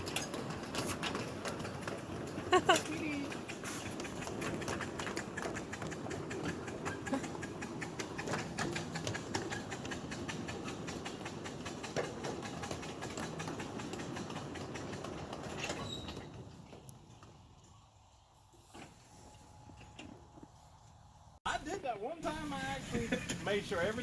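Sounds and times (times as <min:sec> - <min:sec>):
miniature steam train running: 0:00.0 - 0:17.3, 0:21.5 - 0:24.0
wheels clicking over rails: 0:00.0 - 0:17.7, 0:21.5 - 0:24.0.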